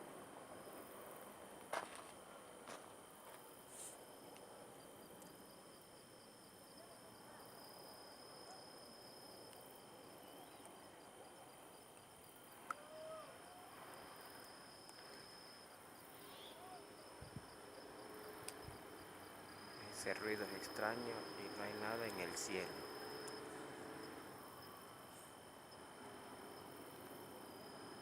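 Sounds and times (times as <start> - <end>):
insects trilling: 0.4 - 28.0
faint pitched calls: 16.2 - 16.9.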